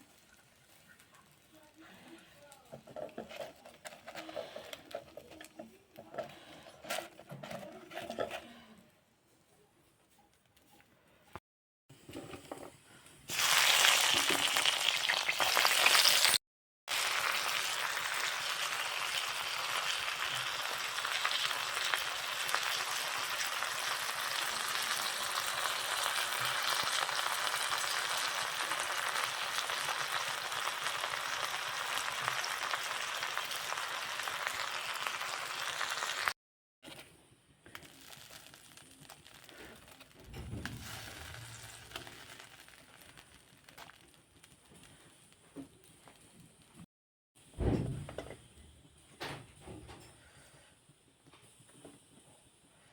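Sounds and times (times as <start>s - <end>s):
food sizzling in a pan: 13.3s - 36.4s, 37.7s - 44.0s.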